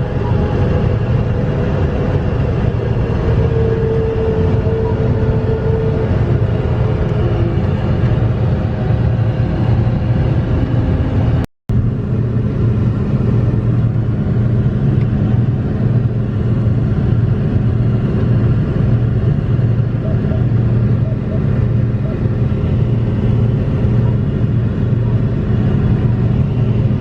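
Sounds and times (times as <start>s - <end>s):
heavy engine droning: 0.0s - 27.0s.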